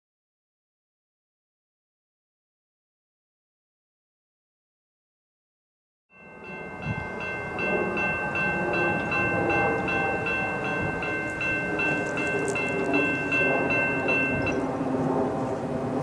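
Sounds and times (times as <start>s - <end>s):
railroad crossing bell ringing: 6.1s - 15.2s
freight train rumble: 6.2s - 16.0s.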